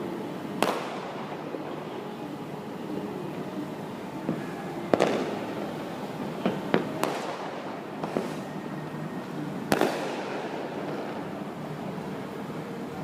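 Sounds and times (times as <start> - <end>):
steady background hum: 0.0 - 13.0
fireworks banging: 0.5 - 1.9, 4.2 - 8.5, 9.6 - 11.9.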